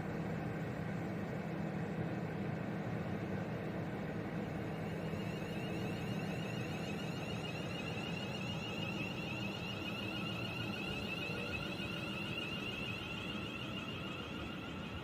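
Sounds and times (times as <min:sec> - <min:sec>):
electronic warbling alarm: 0:04.8 - 0:15.0.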